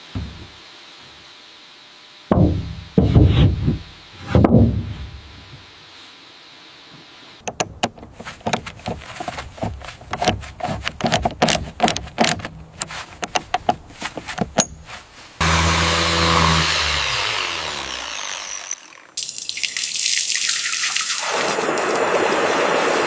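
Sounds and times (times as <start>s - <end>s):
heavy knock with ringing tail: 2.3s - 2.9s
quick clicks and clattering knocks: 7.4s - 14.8s.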